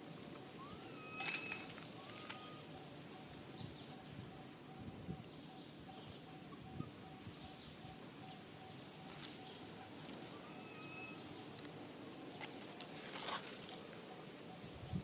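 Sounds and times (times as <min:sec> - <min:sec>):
background hiss: 0:00.0 - 0:15.0
faint whistled call: 0:00.6 - 0:09.2, 0:09.8 - 0:11.3
brief rustle: 0:12.4 - 0:13.8.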